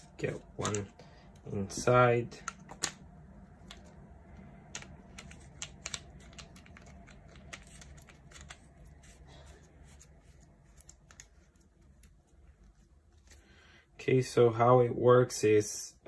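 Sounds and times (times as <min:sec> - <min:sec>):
handling clicks and taps: 0:00.4 - 0:00.9, 0:01.7 - 0:03.0, 0:04.6 - 0:08.8.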